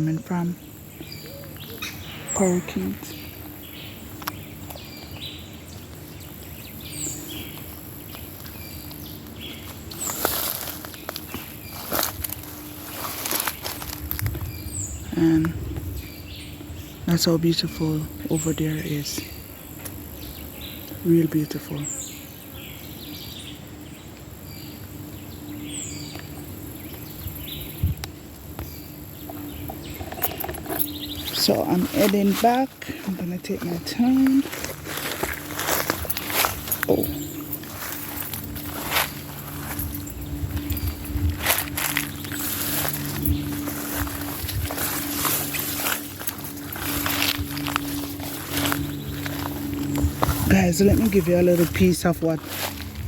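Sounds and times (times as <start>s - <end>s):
insects droning: 0.0s - 53.0s
parakeets calling: 0.0s - 53.0s
rustling noise: 8.9s - 14.6s, 30.0s - 53.0s.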